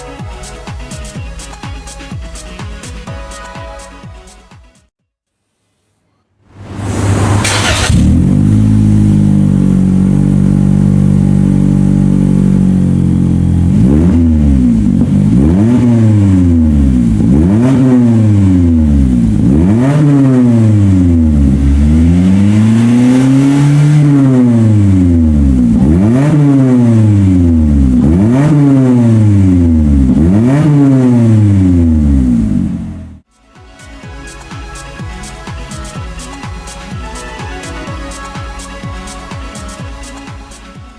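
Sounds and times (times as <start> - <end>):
car engine idling and revving: 6.6 - 33.3.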